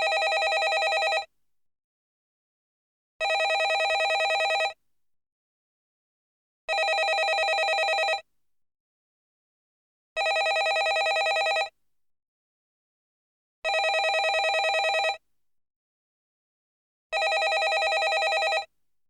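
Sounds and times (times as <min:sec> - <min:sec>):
telephone bell ringing: 0:00.0 - 0:01.3, 0:03.2 - 0:04.8, 0:06.7 - 0:08.2, 0:10.2 - 0:11.7, 0:13.7 - 0:15.2, 0:17.2 - 0:18.7.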